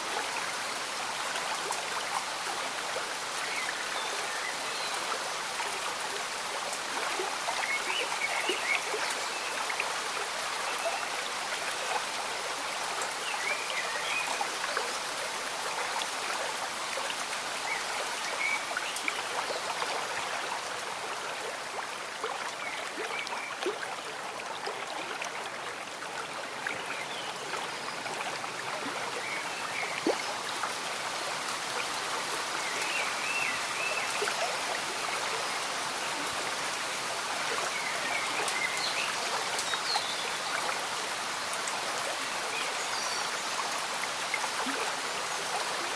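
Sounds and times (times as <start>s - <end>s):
stream bubbling: 10.8s - 45.9s.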